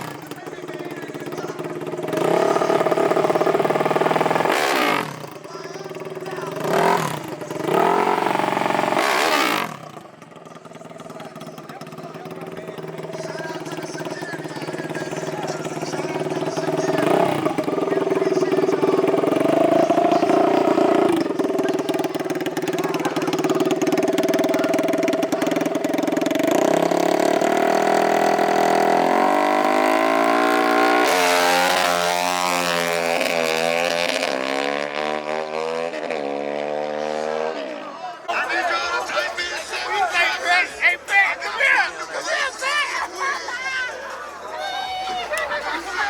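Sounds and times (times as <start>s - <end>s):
engine running and revving: 0.0s - 37.8s.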